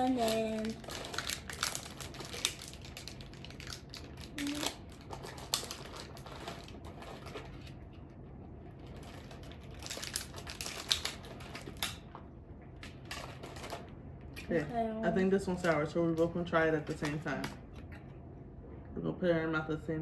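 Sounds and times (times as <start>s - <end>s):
plastic wrappers crinkling: 0.0s - 7.8s, 8.8s - 12.2s, 12.8s - 14.7s.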